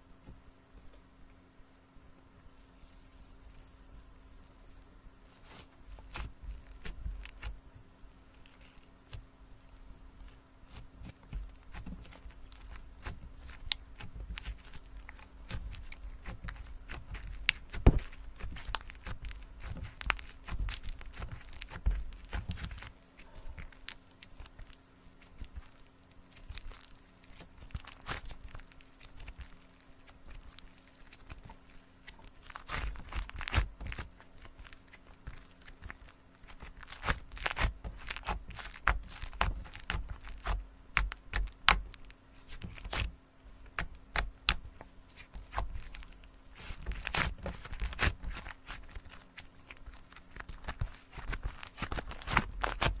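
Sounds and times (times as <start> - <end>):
slime crackling and popping: 2.4 - 7.6, 8.2 - 53.0.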